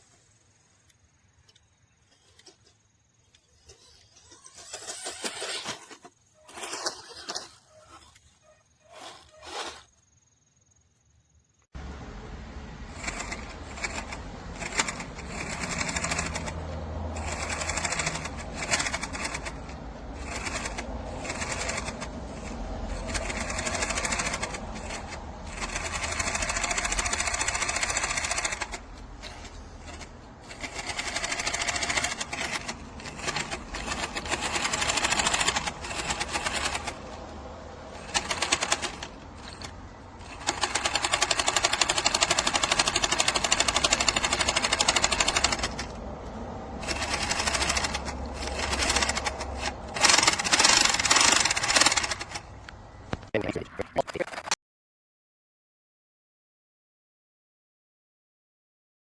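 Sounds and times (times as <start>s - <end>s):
toy truck motor whining: 0.0s - 10.2s, 12.7s - 54.6s.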